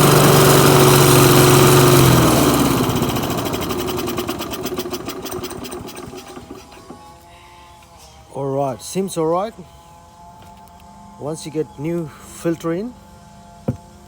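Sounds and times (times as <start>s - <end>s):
lawn mower engine running: 0.0s - 7.2s.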